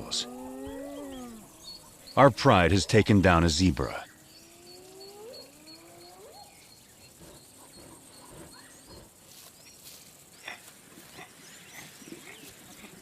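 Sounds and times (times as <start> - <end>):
faint animal call rising: 0.0 - 2.0
rustles: 4.8 - 13.0.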